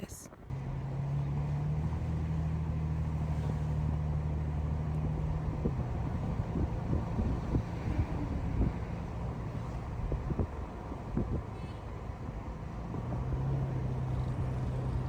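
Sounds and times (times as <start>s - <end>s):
car driving: 0.4s - 15.0s
low bumps and rumble: 3.0s - 11.6s.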